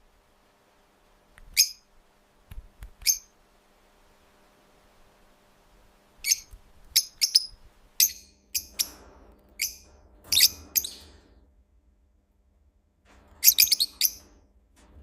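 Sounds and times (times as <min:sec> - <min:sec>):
lovebirds chirping: 0:06.2 - 0:08.9.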